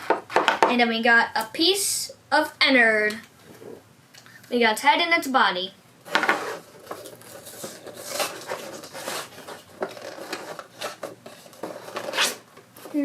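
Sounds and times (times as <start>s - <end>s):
packaging rustling: 6.1s - 13.0s.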